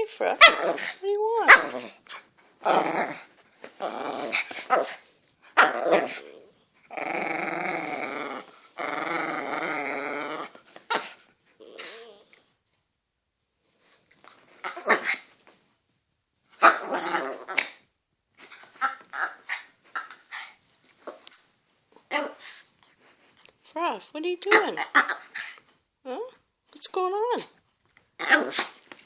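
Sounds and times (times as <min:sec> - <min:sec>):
dogs growling: 0:00.2 - 0:11.0, 0:16.6 - 0:17.8, 0:28.2 - 0:28.8.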